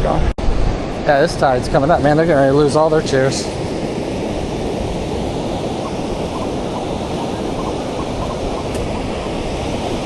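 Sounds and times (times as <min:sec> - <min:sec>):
ocean surf washing: 0:00.0 - 0:10.0.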